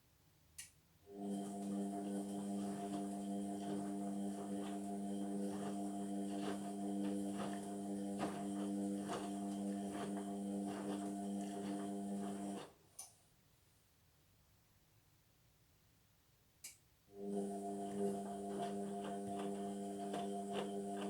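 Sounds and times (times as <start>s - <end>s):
washing machine motor hum: 1.1s - 12.8s, 17.1s - 21.0s.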